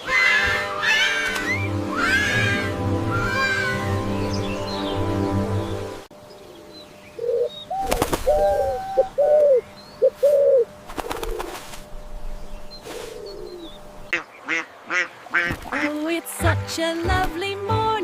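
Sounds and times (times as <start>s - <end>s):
pigeon cooing: 7.2s - 11.6s.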